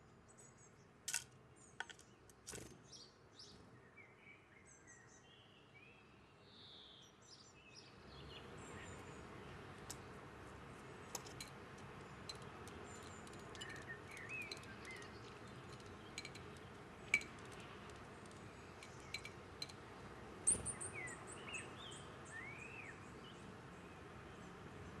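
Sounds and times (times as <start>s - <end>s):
birds ticking and tapping: 1.1s - 3.5s, 8.3s - 21.6s
high ticking bird calls: 11.0s - 19.9s.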